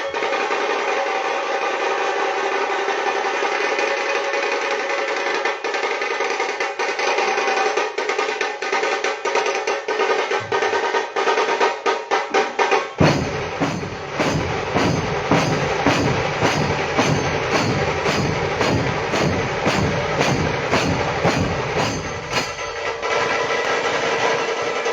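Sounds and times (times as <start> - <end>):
drum-led music: 4.3 - 24.9
steady held tones: 13.0 - 23.6
heavy bass drumming: 13.0 - 24.7.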